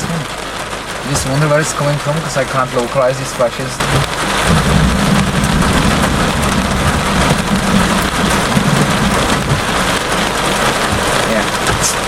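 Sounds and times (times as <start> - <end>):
rain falling on a car: 0.0 - 12.0
thunder rumbling: 3.8 - 12.0.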